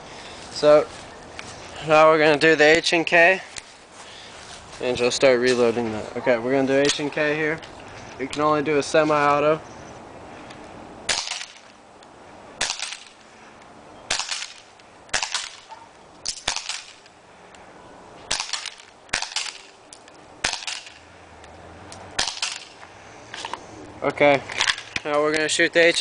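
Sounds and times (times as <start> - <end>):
airsoft pistol shots: 11.1 - 11.6, 12.6 - 13.1, 14.1 - 15.7, 16.3 - 17.0, 18.3 - 19.8, 20.4 - 21.0, 22.2 - 22.8.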